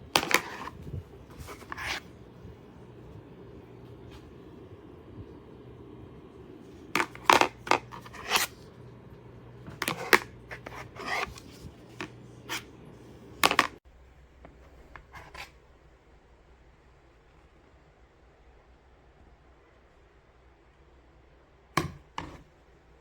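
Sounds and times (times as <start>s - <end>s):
plates scraping: 0.0s - 2.2s, 6.8s - 8.7s, 9.6s - 13.8s, 14.8s - 15.6s, 21.8s - 22.5s
plastic plates clattering: 0.1s - 0.8s, 7.0s - 8.5s, 9.7s - 11.4s, 13.4s - 13.8s.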